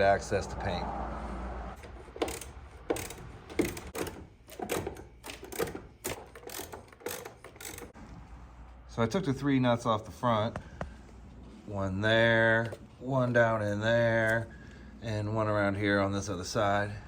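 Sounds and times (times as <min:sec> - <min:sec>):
ratchet wrench clicking: 0:01.8 - 0:08.0.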